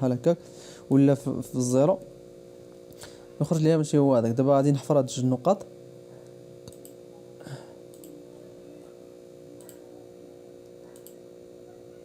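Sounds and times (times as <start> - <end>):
electrical hum: 0.0 - 12.0
computer mouse clicks: 6.6 - 7.0, 7.9 - 8.2, 9.6 - 9.8, 10.9 - 11.2.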